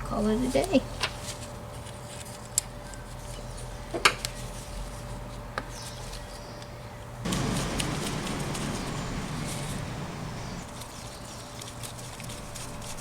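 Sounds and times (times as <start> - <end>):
loud steady noise: 7.3 - 10.7.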